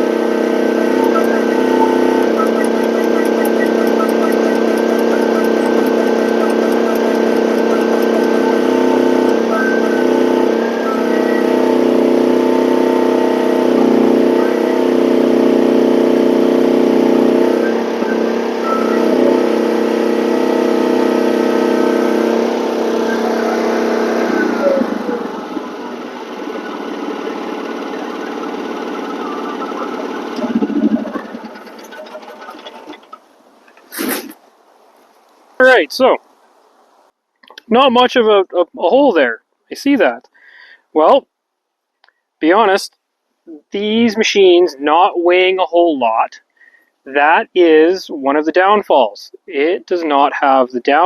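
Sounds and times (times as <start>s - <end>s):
hydraulic auger boring into ground: 0.0s - 34.4s
excavator engine at high revs: 0.0s - 36.3s.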